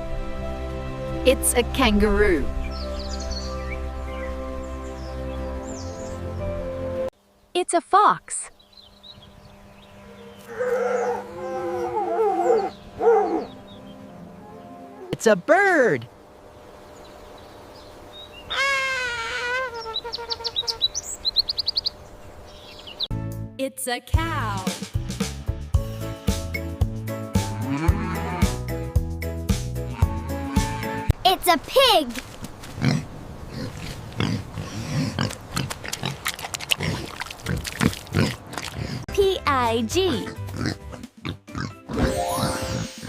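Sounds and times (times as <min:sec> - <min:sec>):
bird wavering call: 0:10.0 - 0:15.1
pig grunting and snorting: 0:32.8 - 0:39.2, 0:40.1 - 0:43.0.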